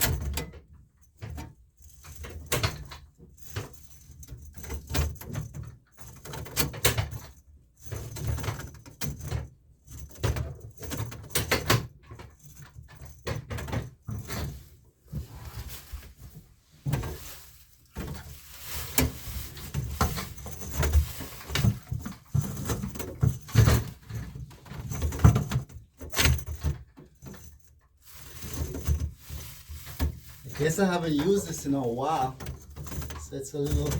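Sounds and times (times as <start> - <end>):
drain auger clunks and scrapes: 13.9 - 27.2.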